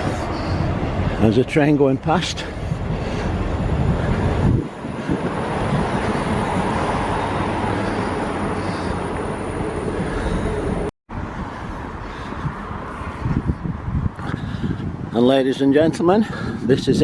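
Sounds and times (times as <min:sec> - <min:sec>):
train passing: 0:00.0 - 0:10.9.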